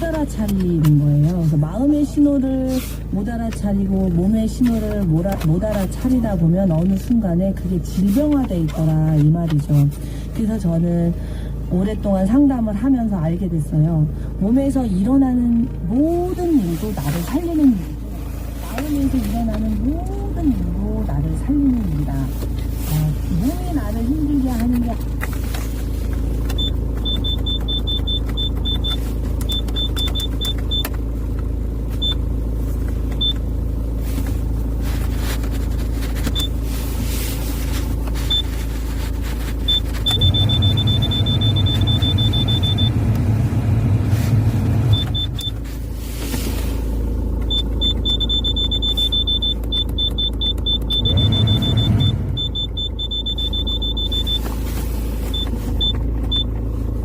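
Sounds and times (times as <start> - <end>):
car engine running: 0.0 - 57.0
high-pitched electronic beeping: 47.5 - 54.5.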